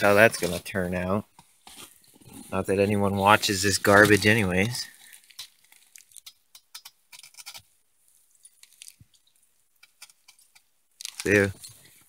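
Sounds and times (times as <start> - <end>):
small objects clicking: 3.9 - 7.7.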